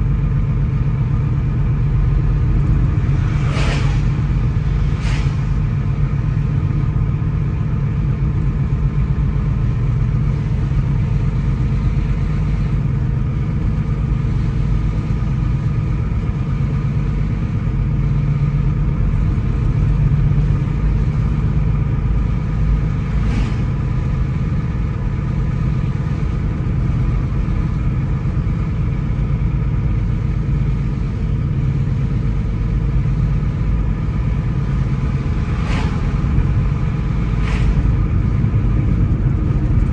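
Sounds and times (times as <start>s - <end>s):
car engine and road rumble: 0.0s - 39.9s
faint engine hum: 0.0s - 39.9s
brief swish: 3.1s - 5.7s, 23.0s - 24.2s, 35.0s - 38.3s.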